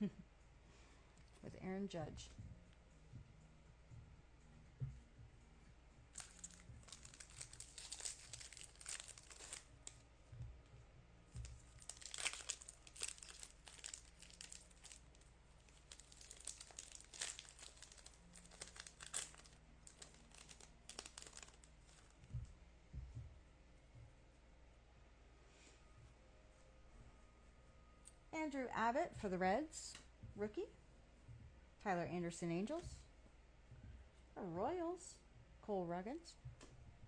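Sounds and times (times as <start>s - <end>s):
foil wrappers crinkling and tearing: 6.2s - 10.0s, 11.4s - 22.2s.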